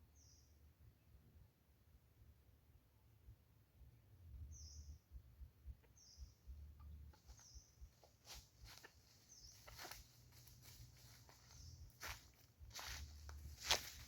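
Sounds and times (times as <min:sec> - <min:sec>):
faint high bird chirps: 0:04.5 - 0:14.0.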